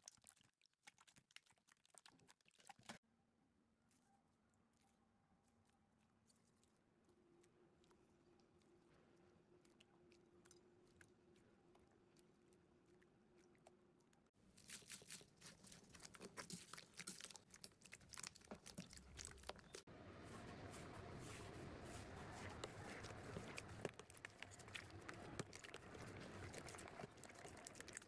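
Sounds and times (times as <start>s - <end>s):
slime squeezed crackling: 22.4s - 28.0s.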